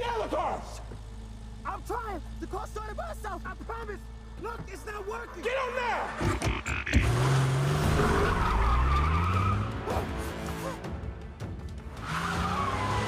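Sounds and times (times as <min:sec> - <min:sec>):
film score: 0:00.0 - 0:13.0
sports car engine revving: 0:06.4 - 0:11.1.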